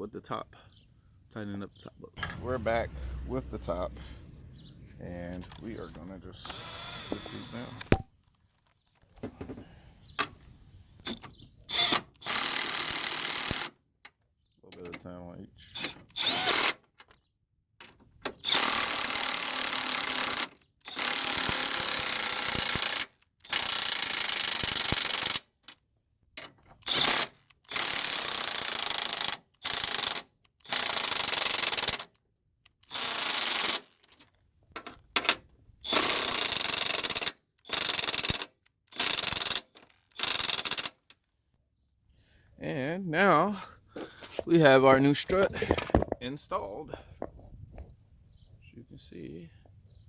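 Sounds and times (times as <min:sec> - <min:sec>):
cordless power wrench bursts: 0:06.4 - 0:08.0, 0:11.0 - 0:13.8, 0:15.7 - 0:16.9, 0:18.2 - 0:25.6, 0:26.8 - 0:32.1, 0:32.8 - 0:34.2, 0:35.8 - 0:41.1.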